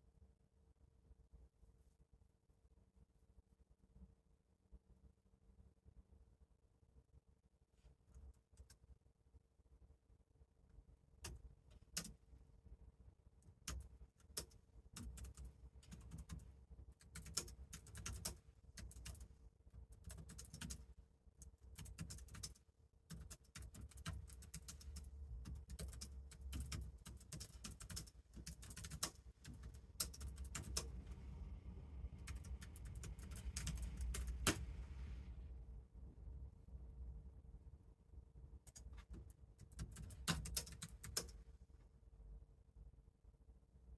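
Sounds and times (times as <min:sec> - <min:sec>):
faint steady hum: 0:00.0 - 0:43.9
computer keyboard typing: 0:11.2 - 0:12.2, 0:13.5 - 0:19.3, 0:19.9 - 0:31.2, 0:32.1 - 0:34.7, 0:38.7 - 0:41.4.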